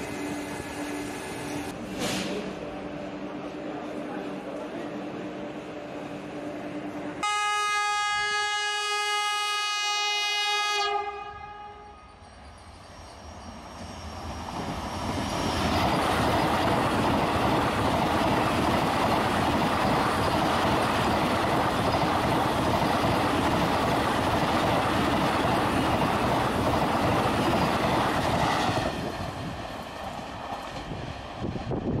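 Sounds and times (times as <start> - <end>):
train running past: 0.0 - 10.7, 11.3 - 32.0
train horn blast: 7.2 - 12.0.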